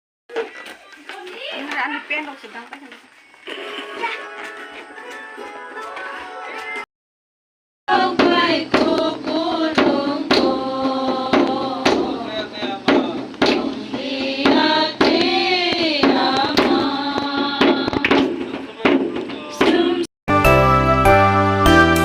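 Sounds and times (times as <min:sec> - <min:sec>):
voices singing: 0:07.9 - 0:20.1.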